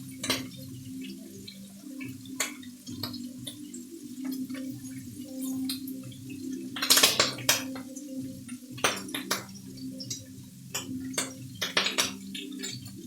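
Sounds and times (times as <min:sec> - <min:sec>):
low steady tones: 0:00.0 - 0:13.0
metal utensils clinking on plates: 0:06.8 - 0:07.9, 0:10.7 - 0:12.9.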